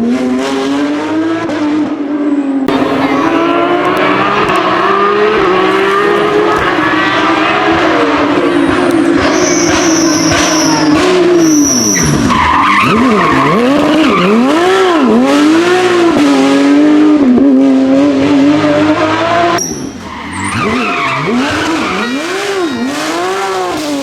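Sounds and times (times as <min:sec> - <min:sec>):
rally car engine revving hard: 0:00.0 - 0:24.0.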